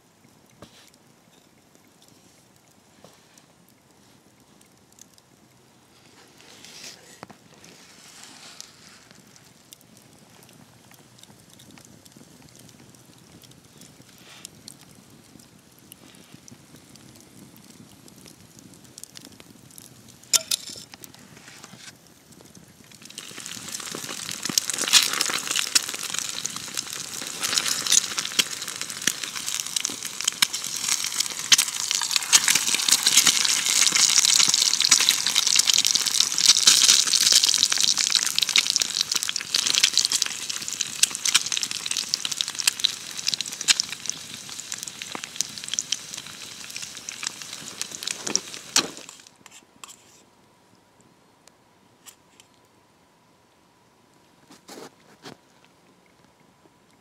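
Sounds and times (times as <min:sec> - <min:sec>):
eggs sizzling in a frying pan: 0:08.0 - 0:21.3, 0:22.0 - 0:50.1.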